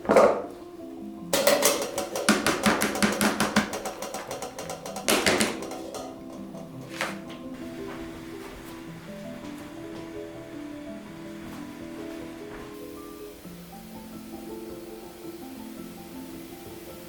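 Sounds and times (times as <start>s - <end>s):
soft background music: 0.0s - 17.0s
sharp knock: 1.4s - 7.2s
rapid light knocks: 1.4s - 10.2s.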